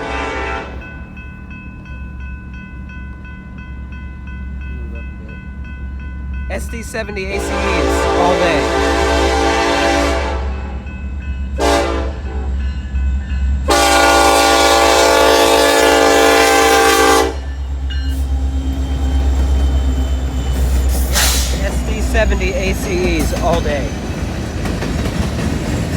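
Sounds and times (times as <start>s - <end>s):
locomotive air horn blasts: 0.0s - 0.8s, 7.3s - 10.8s, 11.6s - 12.6s, 13.7s - 17.5s
locomotive rumbling past: 0.0s - 25.9s.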